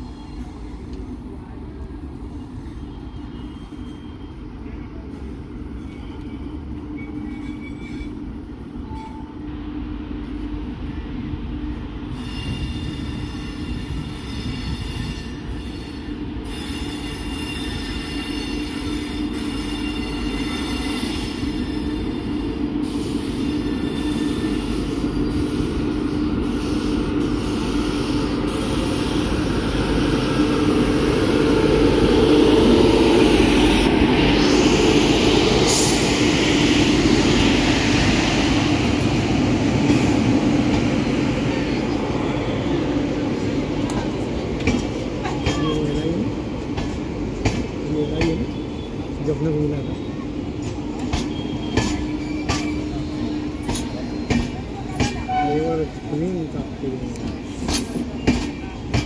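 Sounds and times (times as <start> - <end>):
train wheels squealing: 0.0 - 1.0, 2.2 - 9.4, 12.0 - 39.2, 47.9 - 56.1, 57.4 - 59.0
electric train approaching: 0.0 - 59.0.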